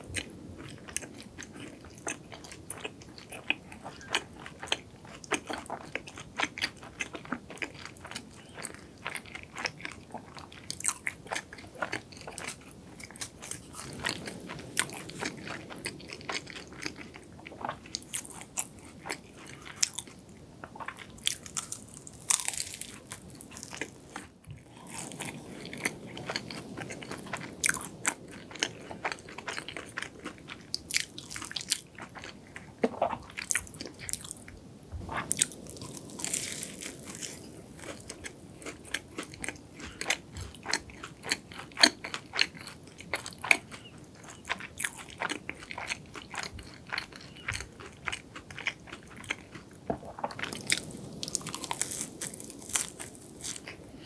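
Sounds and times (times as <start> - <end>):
biting and chewing pastry: 0.0 - 54.0
flaky pastry crackles: 20.9 - 32.6, 35.0 - 54.0.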